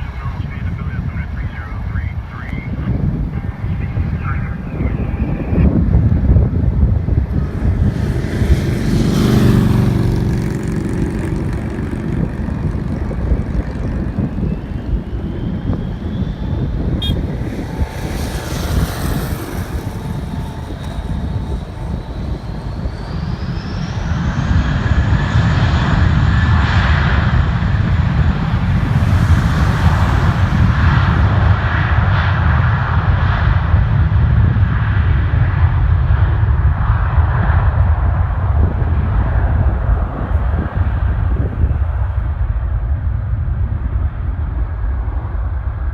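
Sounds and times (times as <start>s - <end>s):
jet engines rumbling: 0.0s - 45.9s
turbine whine rising in pitch: 5.1s - 33.2s.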